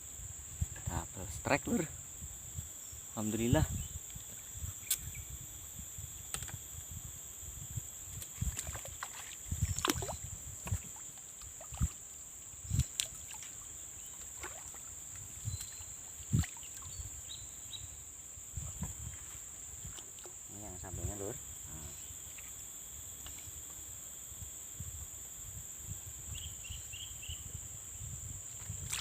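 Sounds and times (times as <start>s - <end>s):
crickets chirring: 0.0s - 29.0s
splashes and knocks in water: 8.2s - 12.0s, 12.7s - 14.9s, 28.6s - 29.0s.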